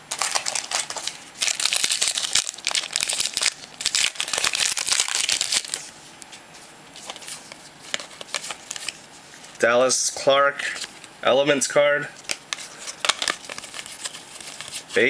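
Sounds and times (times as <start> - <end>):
foil wrapper crinkling: 0.1 - 5.9, 12.2 - 15.0.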